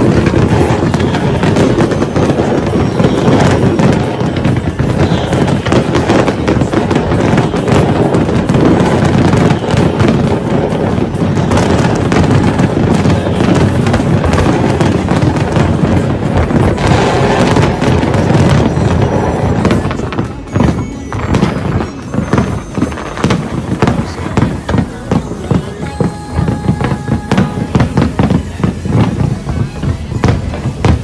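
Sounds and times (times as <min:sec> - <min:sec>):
fireworks popping and banging: 0:00.0 - 0:31.0.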